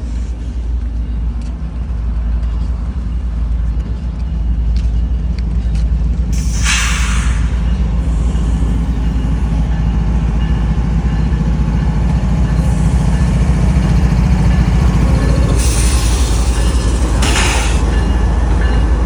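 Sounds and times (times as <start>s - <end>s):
diesel locomotive engine rumble: 0.0s - 19.0s
short bursts of hiss: 6.4s - 7.8s.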